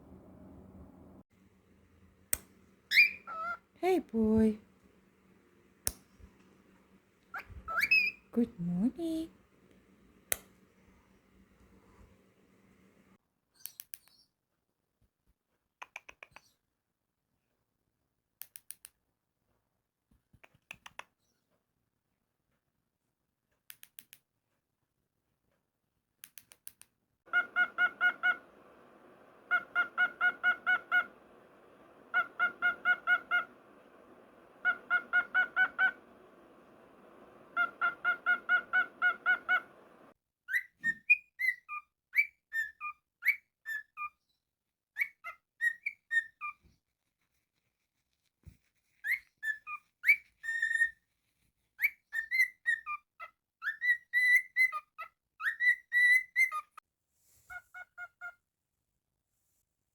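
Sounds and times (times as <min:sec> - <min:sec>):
cockatiel chirping and whistling: 0:02.9 - 0:03.6, 0:07.3 - 0:08.2, 0:27.3 - 0:44.1, 0:45.0 - 0:46.6, 0:49.0 - 0:51.0, 0:51.8 - 0:56.7.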